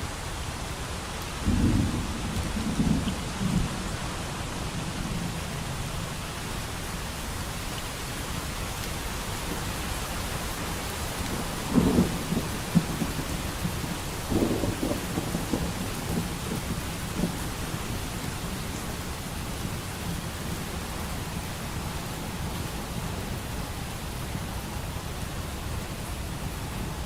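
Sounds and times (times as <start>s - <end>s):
rain hissing: 0.0s - 27.0s
distant thunder rumbling: 1.4s - 4.0s, 11.4s - 17.9s.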